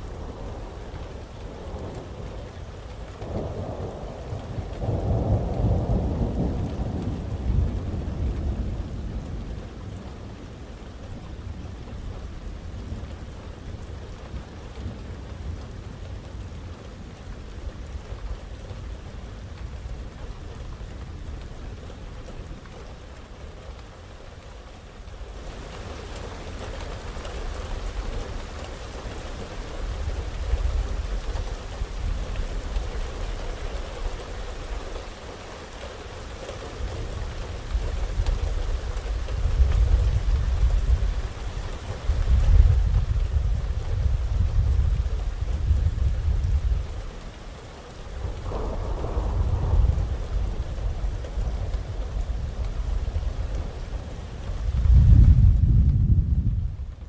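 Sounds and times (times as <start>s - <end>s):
heavy rain falling: 0.0s - 57.0s
rolling thunder: 3.2s - 9.6s, 48.2s - 57.0s.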